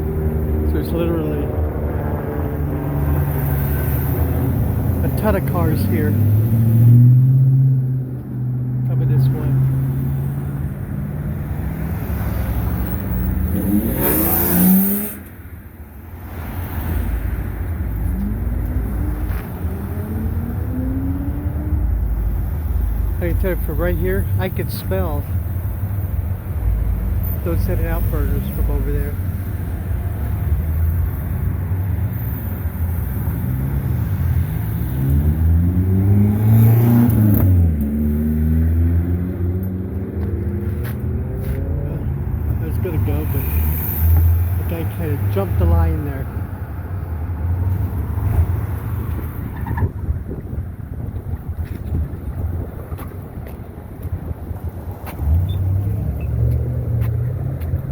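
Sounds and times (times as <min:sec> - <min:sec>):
vehicle passing by: 0:00.0 - 0:15.3, 0:16.3 - 0:25.2, 0:26.4 - 0:49.5
engine speeding up: 0:00.0 - 0:15.4, 0:16.5 - 0:32.1, 0:32.8 - 0:46.4
traffic rumble: 0:00.0 - 0:57.9
car accelerating past: 0:05.9 - 0:15.3, 0:33.0 - 0:44.7.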